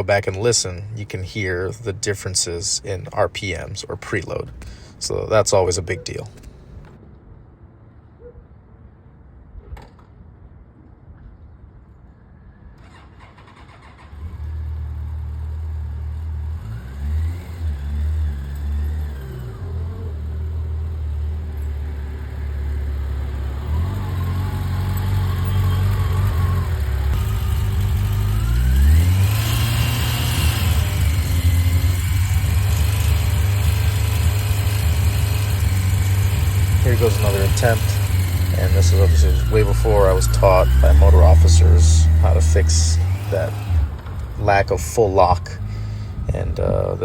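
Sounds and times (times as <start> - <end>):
motorcycle engine revving: 12.8 - 47.0.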